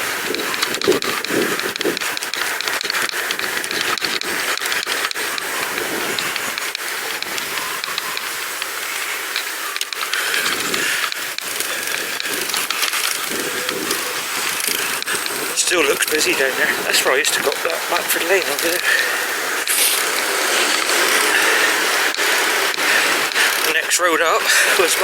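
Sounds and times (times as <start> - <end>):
bicycle rattling clicks: 0.0 - 25.0
wind and tyre hiss: 0.0 - 25.0.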